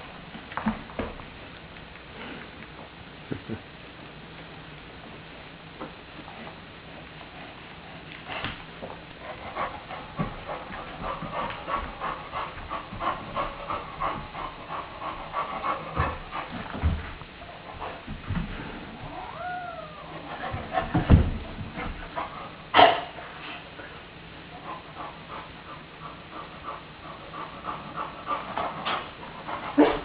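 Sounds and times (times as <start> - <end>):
cat yowling: 19.0 - 20.2.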